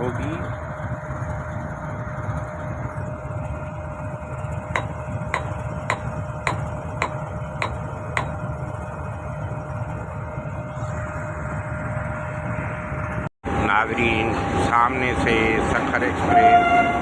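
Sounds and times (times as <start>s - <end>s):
diesel locomotive idling: 0.0s - 17.0s
sharp metal strikes ringing: 4.8s - 8.4s.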